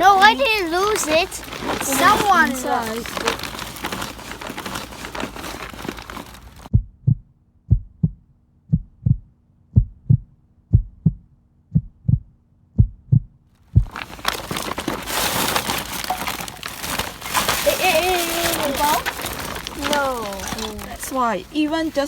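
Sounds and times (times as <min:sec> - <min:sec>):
heartbeat thumps: 0:06.7 - 0:14.4
outdoor noise: 0:13.5 - 0:22.0.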